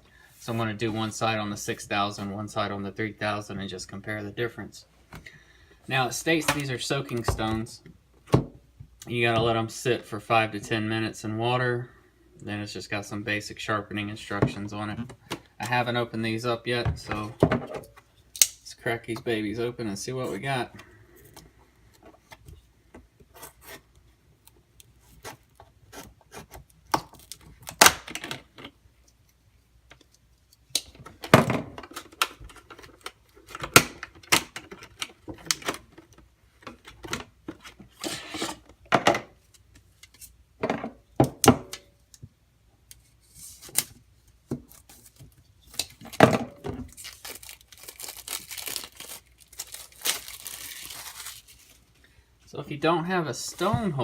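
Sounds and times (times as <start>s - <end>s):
knocks and scrapes of handling: 34.6s - 41.0s
packaging torn open: 46.9s - 51.8s.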